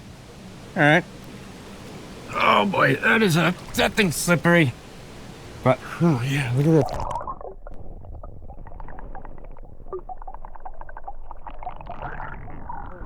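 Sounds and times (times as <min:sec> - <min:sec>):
muffled underwater water rumble: 0:00.0 - 0:13.0
underwater clicks and gurgles: 0:06.5 - 0:13.0.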